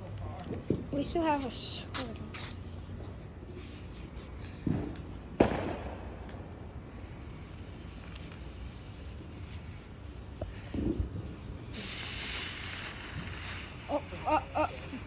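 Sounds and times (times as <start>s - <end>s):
crickets chirping: 0.0s - 15.0s
firework loud bang: 4.6s - 6.2s.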